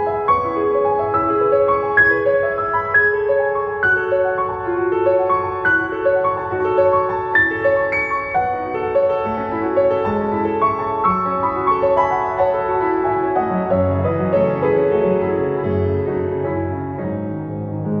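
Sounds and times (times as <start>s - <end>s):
soft solo piano: 0.0s - 18.0s.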